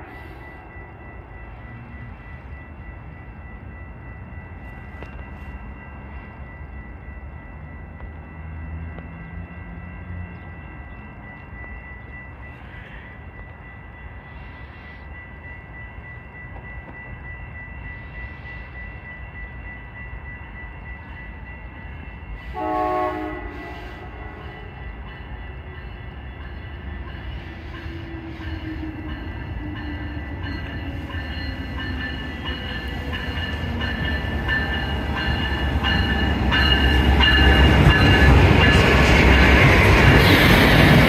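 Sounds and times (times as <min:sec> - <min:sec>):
high-pitched ringing tone: 0:00.0 - 0:41.0
locomotive rumbling: 0:19.4 - 0:41.0.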